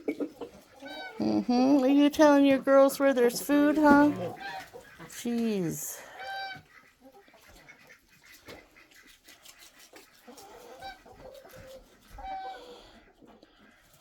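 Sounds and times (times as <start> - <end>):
chickens clucking softly: 0.0 - 1.5, 3.3 - 14.0
rooster food-calling: 10.2 - 13.0.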